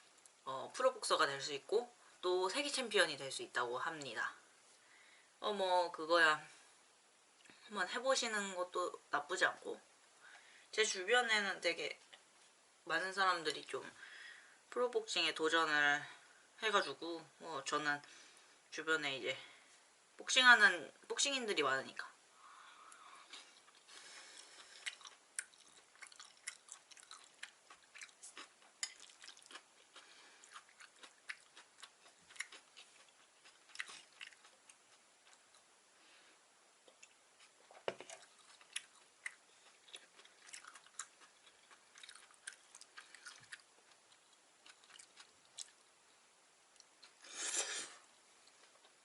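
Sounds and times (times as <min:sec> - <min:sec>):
person chewing close to microphone: 0:23.2 - 0:35.7, 0:36.8 - 0:45.8, 0:48.4 - 0:49.0.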